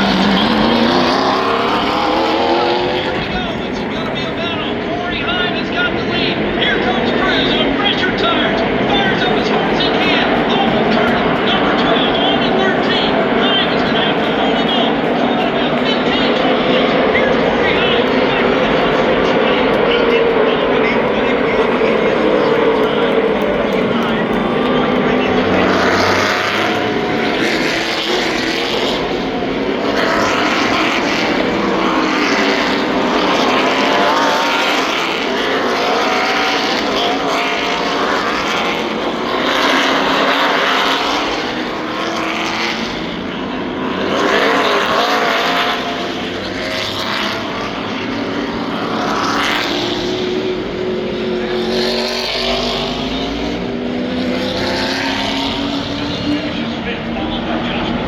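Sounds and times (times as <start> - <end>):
race trucks passing by: 0.0 - 58.0.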